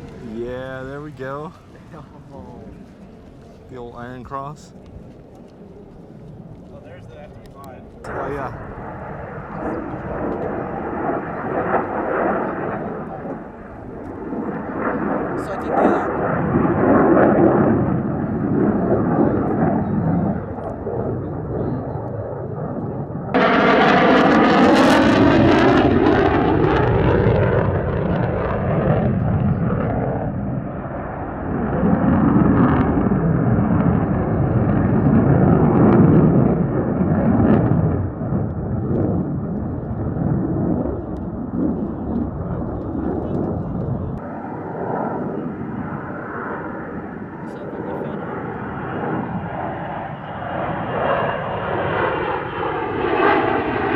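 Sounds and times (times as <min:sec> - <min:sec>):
jet aircraft flying overhead: 0:00.0 - 0:53.9
falling jet whoosh: 0:23.3 - 0:29.4.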